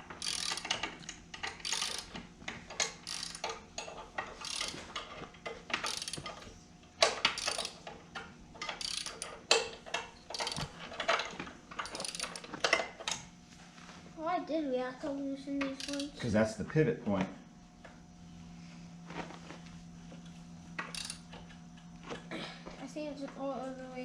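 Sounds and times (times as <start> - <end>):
ratchet wrench clicking: 0.2 - 2.1, 2.7 - 4.8, 5.8 - 6.4, 7.0 - 7.9, 8.6 - 9.7, 10.3 - 10.7, 11.8 - 12.5, 15.8 - 16.2, 20.8 - 21.4.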